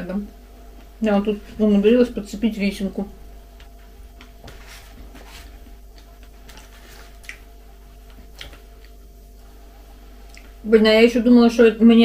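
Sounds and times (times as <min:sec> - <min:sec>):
steady low hum: 0:00.0 - 0:12.0
soft wet chewing: 0:05.9 - 0:09.6, 0:10.2 - 0:10.6.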